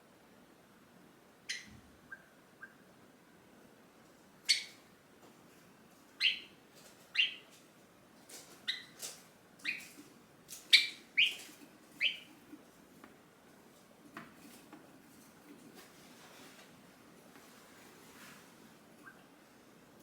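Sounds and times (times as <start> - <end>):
sparrow calling sharp notes: 1.5 - 2.8, 4.5 - 4.8, 6.2 - 6.5, 7.1 - 7.5, 9.6 - 10.0, 10.7 - 11.4, 12.0 - 12.3.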